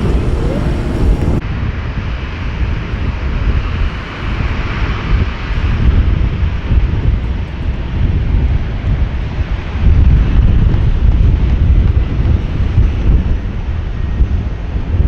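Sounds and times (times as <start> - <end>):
jet airliner engine noise: 0.0 - 1.4
wind buffeting microphone: 0.0 - 1.4.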